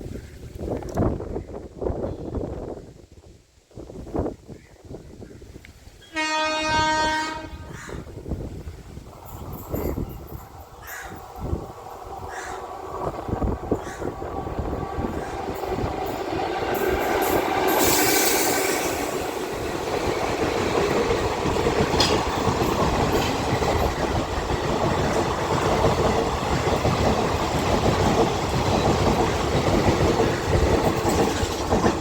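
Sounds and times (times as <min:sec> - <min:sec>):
train wheels clattering over rails: 0:09.1 - 0:32.0.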